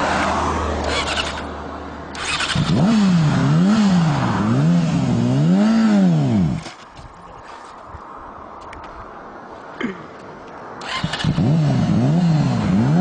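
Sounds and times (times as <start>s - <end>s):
motorcycle engine revving: 0.8s - 6.7s, 10.8s - 13.0s.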